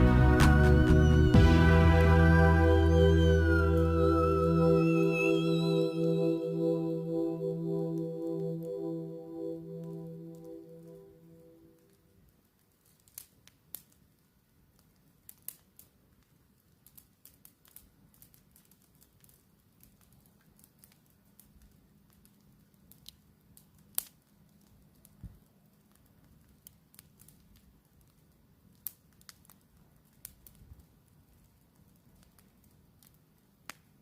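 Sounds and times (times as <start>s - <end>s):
campfire crackling and popping: 0.0s - 4.4s, 11.7s - 34.0s.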